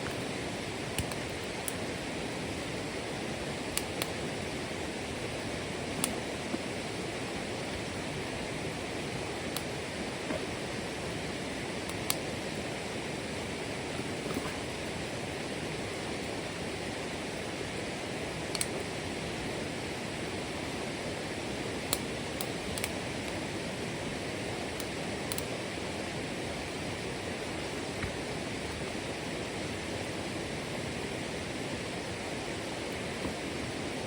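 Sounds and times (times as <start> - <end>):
faint sharp clicks: 1.0 - 1.8, 18.5 - 18.8, 24.8 - 25.5.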